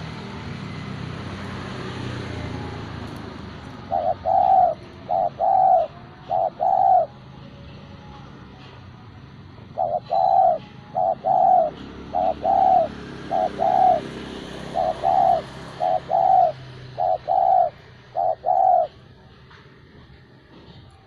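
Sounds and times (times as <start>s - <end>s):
dove cooing: 1.9s - 7.2s, 9.6s - 19.4s.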